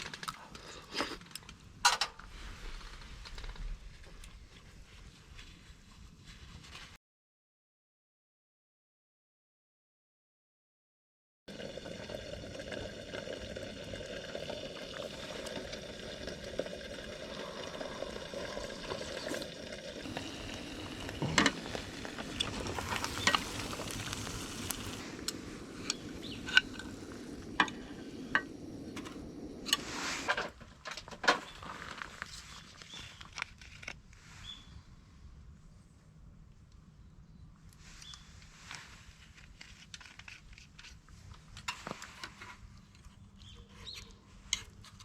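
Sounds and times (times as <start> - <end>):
food sizzling in a pan: 17.2 - 30.3.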